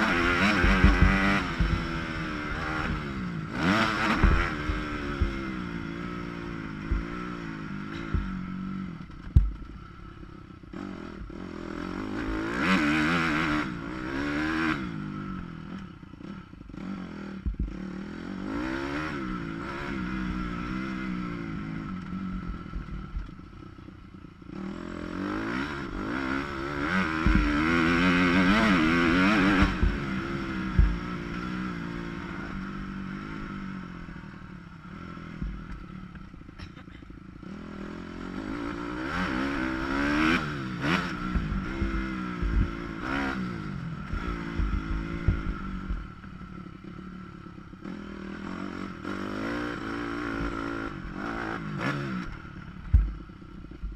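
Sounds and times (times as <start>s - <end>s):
dirt bike engine revving: 0.0s - 53.9s
bike thumps and clatter: 9.3s - 9.6s.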